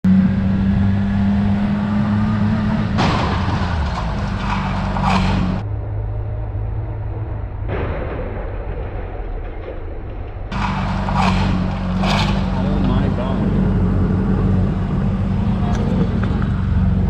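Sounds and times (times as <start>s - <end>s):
road noise: 0.0s - 17.0s
vehicle engine drone: 0.0s - 17.0s.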